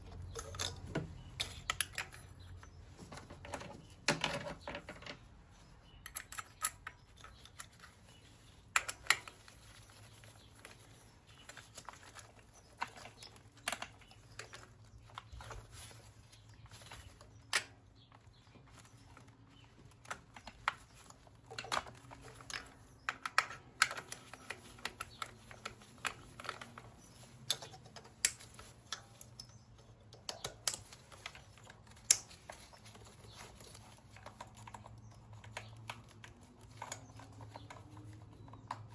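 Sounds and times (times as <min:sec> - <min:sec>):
hand tools clinking: 0:00.0 - 0:04.4.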